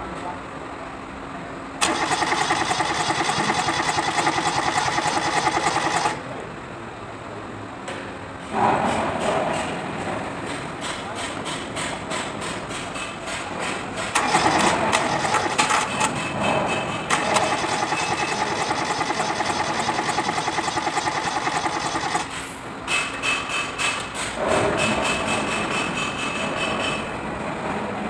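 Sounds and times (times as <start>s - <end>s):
diesel engine cranking on starter: 1.8s - 6.3s, 14.0s - 16.2s, 17.1s - 22.5s.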